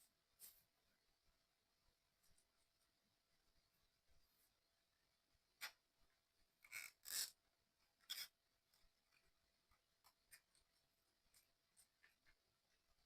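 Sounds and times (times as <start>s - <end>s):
puzzle parts scraping and clicking: 6.7s - 7.4s, 8.0s - 8.4s.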